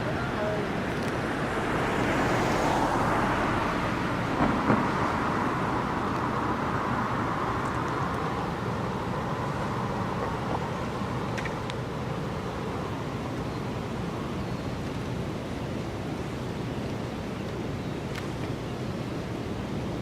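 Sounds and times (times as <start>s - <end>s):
vehicle tyre and road noise: 0.0s - 20.0s.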